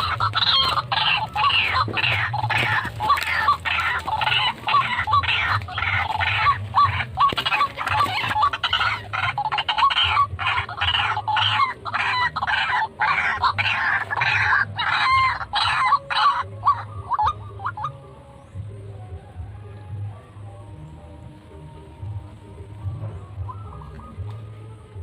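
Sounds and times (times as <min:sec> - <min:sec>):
waterhen calling harsh clucks: 0:00.0 - 0:18.1.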